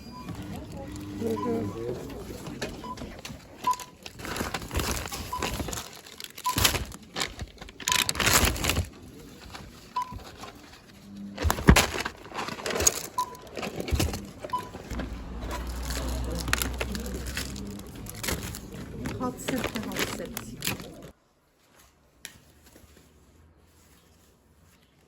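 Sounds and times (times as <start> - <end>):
barcode scanner beeps: 0.0 - 2.2, 7.9 - 8.2, 10.0 - 10.2, 13.2 - 13.5, 14.4 - 15.0
plastic wrapping crinkling: 0.4 - 21.7.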